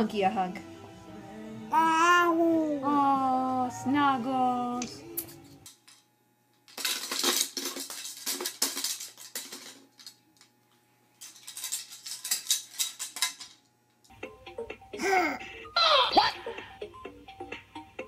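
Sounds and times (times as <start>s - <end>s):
plastic baby toys rattling: 6.7s - 10.2s, 11.2s - 13.6s.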